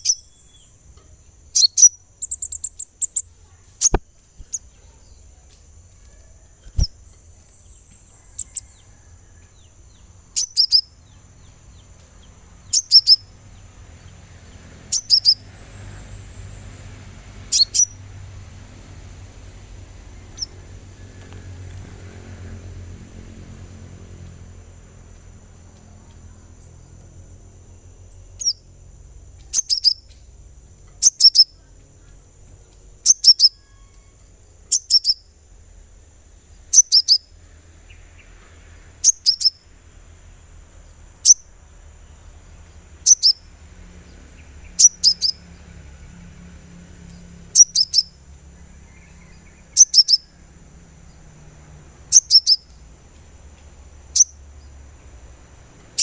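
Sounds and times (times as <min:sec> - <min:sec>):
bird chirps dropping in pitch: 0:00.0 - 0:00.7, 0:01.5 - 0:05.5, 0:06.1 - 0:11.8, 0:12.7 - 0:13.3, 0:14.9 - 0:15.4, 0:17.5 - 0:18.0, 0:20.3 - 0:22.0, 0:43.0 - 0:43.4, 0:44.7 - 0:45.4, 0:47.6 - 0:48.2, 0:48.9 - 0:50.4, 0:52.1 - 0:52.7.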